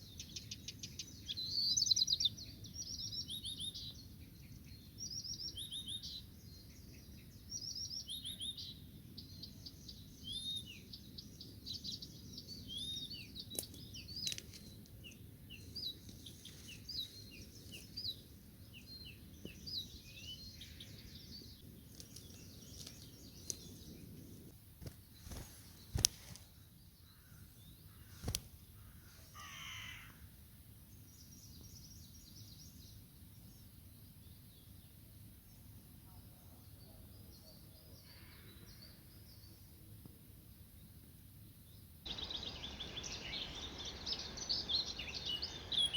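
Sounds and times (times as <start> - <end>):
songbirds singing: 0.0 - 45.9
harsh bird call: 42.1 - 45.9.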